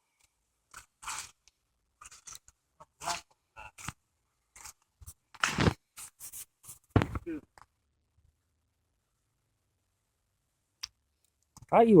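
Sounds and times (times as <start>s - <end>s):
footsteps crunching on trail: 7.0s - 7.2s.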